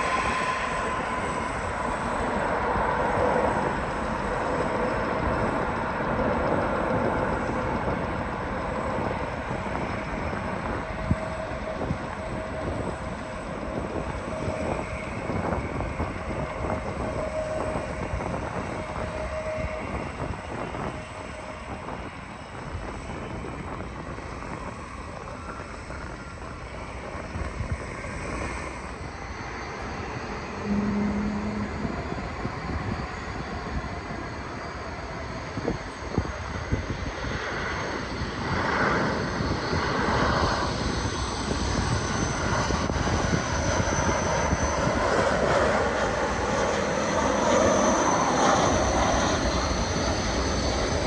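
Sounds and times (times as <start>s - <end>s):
distant jet engines rumbling: 0.0s - 35.0s.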